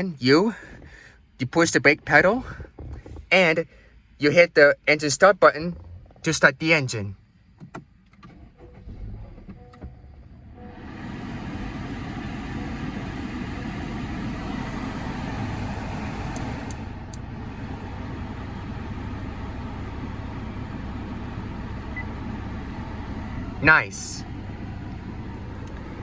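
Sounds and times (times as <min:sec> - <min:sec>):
car engine starting and idling: 0:00.0 - 0:26.0
cabin fan blowing: 0:10.6 - 0:26.0.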